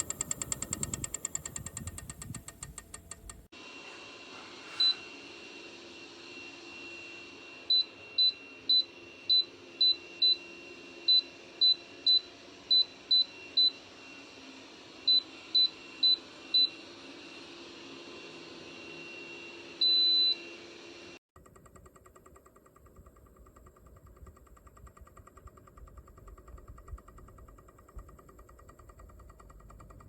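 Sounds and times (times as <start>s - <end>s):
rapid clicking: 0.0s - 3.5s, 21.4s - 30.0s.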